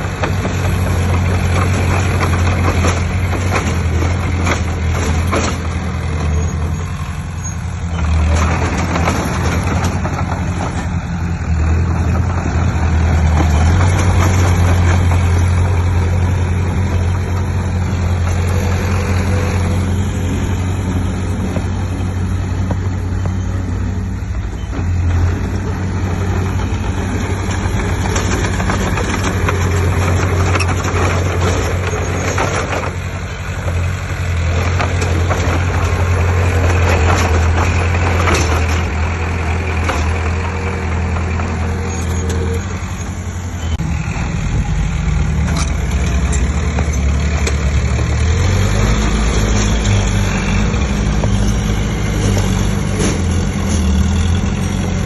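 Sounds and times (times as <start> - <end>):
clatter and scraping: 0.0 - 43.9, 45.2 - 55.0
heavy diesel engine running: 0.0 - 55.0.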